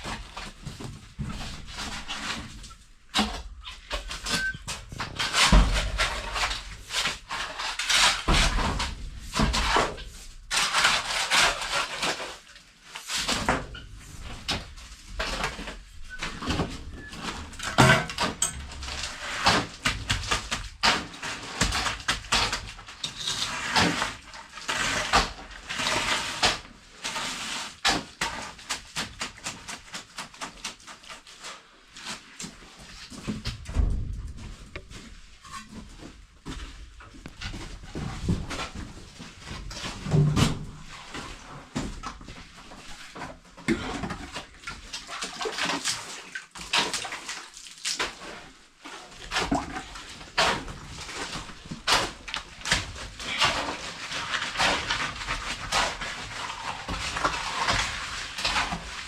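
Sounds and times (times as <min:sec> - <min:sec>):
hand tools scraping cement: 0:03.3 - 0:12.5, 0:15.1 - 0:33.3, 0:48.0 - 0:59.0.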